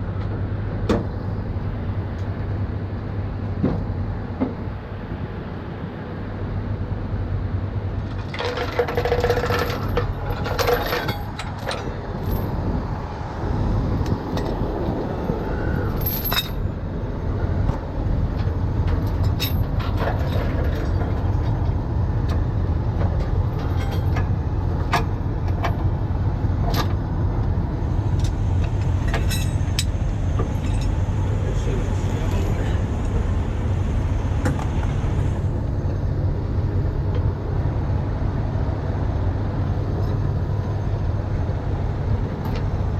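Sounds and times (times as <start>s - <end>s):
diesel engine running: 0.0s - 42.9s
metallic clinks and jangles: 16.0s - 16.6s.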